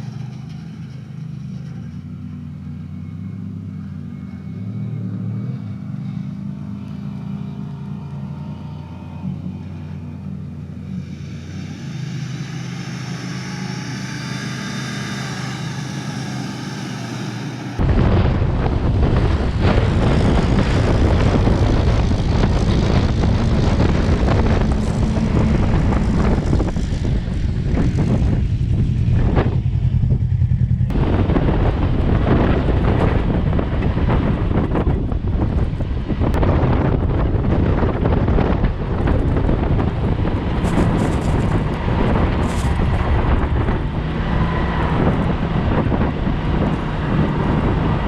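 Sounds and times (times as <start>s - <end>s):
car engine running: 0.0s - 48.0s
wind buffeting microphone: 10.8s - 48.0s.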